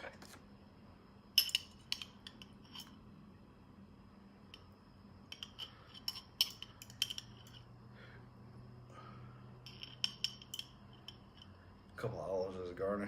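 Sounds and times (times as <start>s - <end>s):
faint low hum: 0.0s - 13.0s
tableware clinking: 1.3s - 3.0s, 4.5s - 7.8s, 9.6s - 11.6s.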